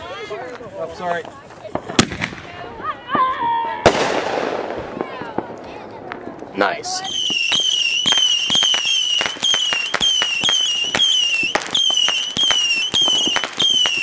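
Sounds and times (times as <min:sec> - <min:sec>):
firecracker pops crackling: 0:01.7 - 0:02.5, 0:03.1 - 0:14.0
high firework whistle: 0:07.0 - 0:14.0.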